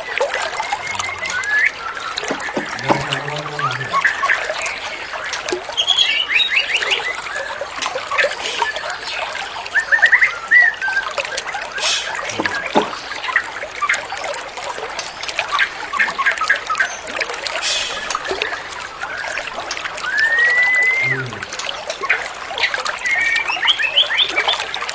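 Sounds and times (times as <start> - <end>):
water trickling and splashing: 0.0 - 24.9
songbird chirping and whistling: 20.0 - 21.2.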